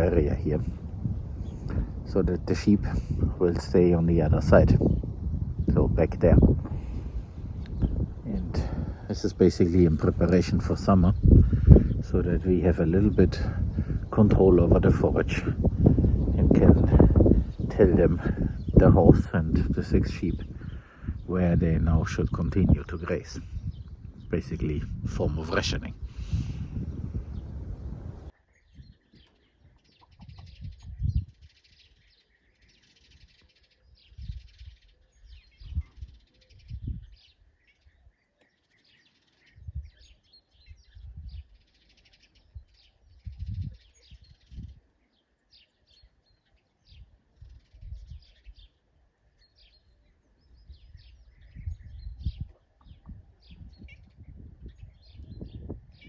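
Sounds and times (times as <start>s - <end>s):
low rumbling bursts: 0.0s - 28.3s
birds chirping: 0.0s - 56.0s.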